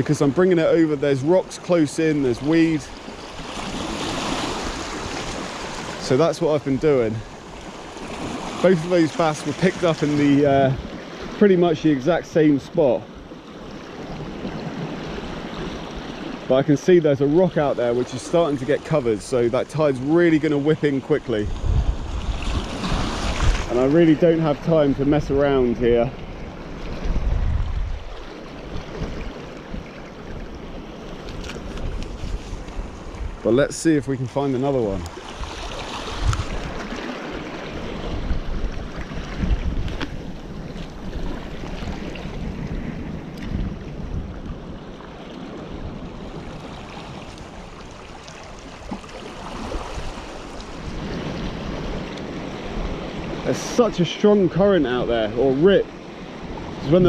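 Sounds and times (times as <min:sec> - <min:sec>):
sea surf on rocky shore: 0:00.0 - 0:57.0
wind buffeting microphone: 0:17.1 - 0:53.5.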